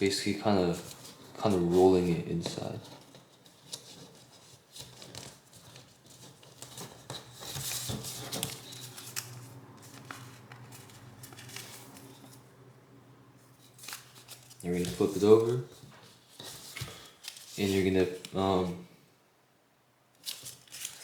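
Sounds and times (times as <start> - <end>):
paper rustling and crinkling: 0.6 - 12.4, 13.6 - 18.8, 20.2 - 21.0
faint low hum: 6.6 - 16.2.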